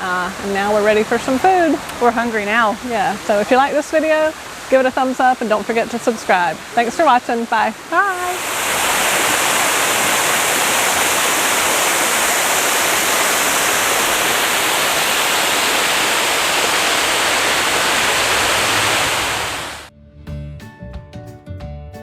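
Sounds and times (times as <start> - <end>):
waterfall roaring: 0.0 - 19.9
music: 19.9 - 22.0.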